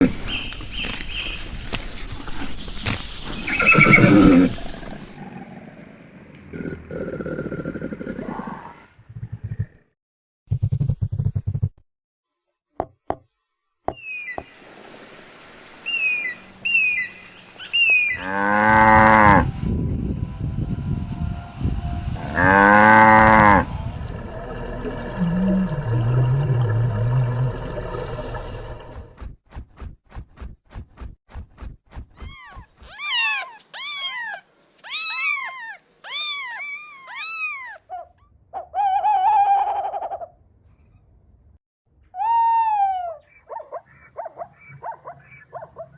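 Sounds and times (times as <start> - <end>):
bird whistling calls: 13.9 - 14.5, 15.9 - 18.2
kitten meowing: 32.2 - 37.8.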